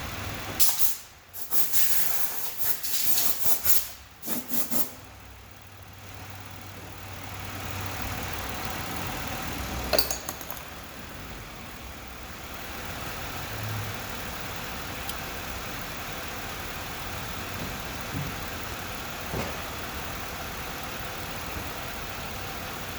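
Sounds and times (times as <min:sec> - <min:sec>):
car engine idling: 0:05.0 - 0:22.9.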